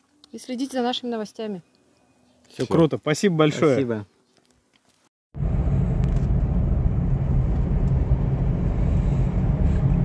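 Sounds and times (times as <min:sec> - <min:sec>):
vehicle engine and road rumble: 0:05.4 - 0:10.0.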